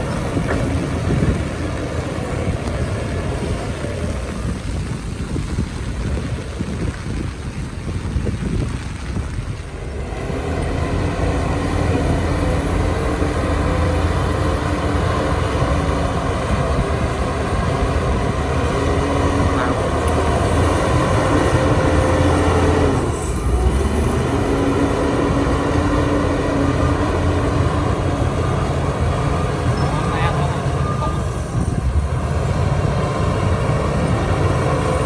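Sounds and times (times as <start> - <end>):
heavy diesel machinery rumbling: 0.0 - 35.0.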